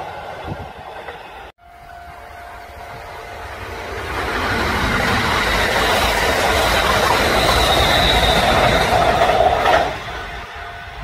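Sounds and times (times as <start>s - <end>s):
electric train on rails: 0.0s - 11.0s.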